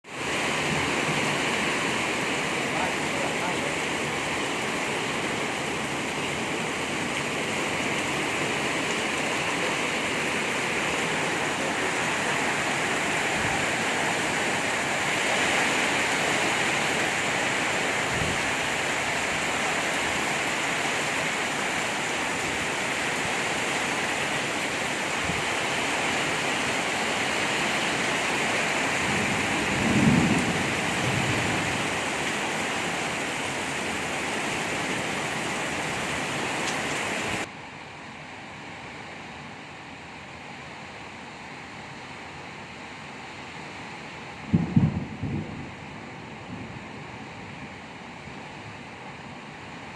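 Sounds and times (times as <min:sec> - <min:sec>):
heavy rain pouring: 0:00.0 - 0:37.5, 0:44.0 - 0:49.9
low rumble of thunder: 0:29.0 - 0:32.1, 0:44.5 - 0:47.1.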